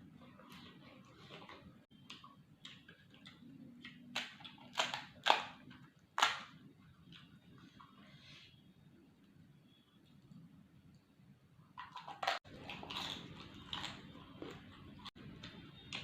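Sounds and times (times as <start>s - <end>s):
crunchy food being chewed: 0.2s - 6.5s, 11.8s - 16.0s.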